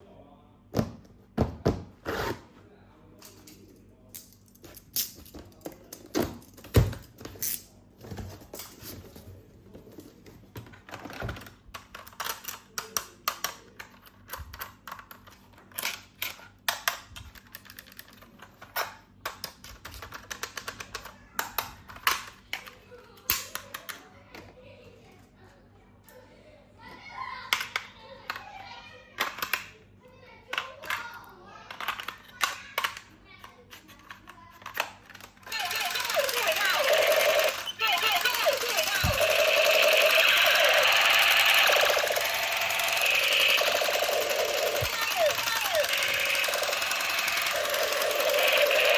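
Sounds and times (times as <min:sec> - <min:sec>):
plastic toys clicking and tapping: 0:10.5 - 0:24.5, 0:27.5 - 0:28.6, 0:29.2 - 0:29.8, 0:30.5 - 0:48.9.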